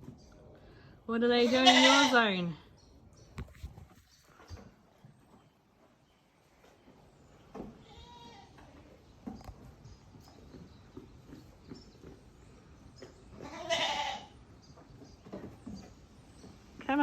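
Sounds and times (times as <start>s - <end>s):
goat bleating: 1.4s - 2.3s, 7.8s - 8.6s, 13.4s - 14.3s.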